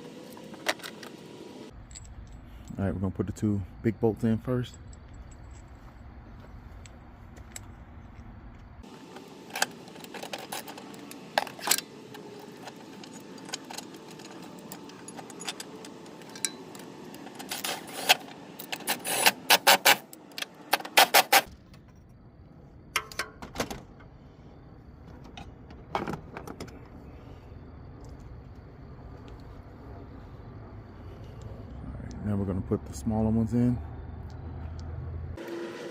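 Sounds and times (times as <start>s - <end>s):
metal tools and bolts clinking: 0.3s - 3.5s, 4.2s - 6.1s, 8.8s - 22.2s, 23.0s - 23.6s.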